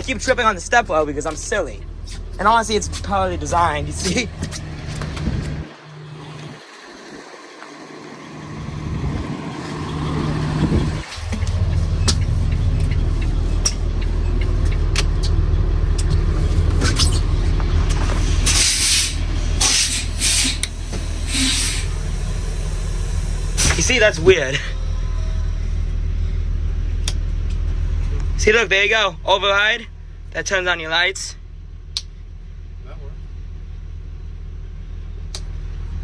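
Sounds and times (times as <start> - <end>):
diesel engine idling: 0.0 - 36.0
air hiss bursts: 18.1 - 23.9.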